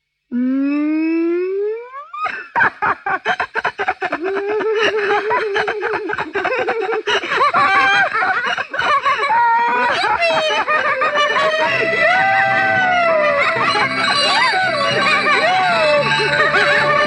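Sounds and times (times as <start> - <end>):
person laughing: 2.0 - 17.0
drawn-out voiced tones: 9.6 - 17.0.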